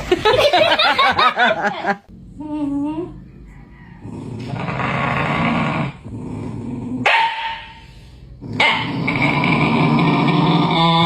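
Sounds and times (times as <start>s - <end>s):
dog growling: 2.1s - 7.1s, 8.4s - 11.0s
dog barking: 7.0s - 7.8s, 8.6s - 8.9s.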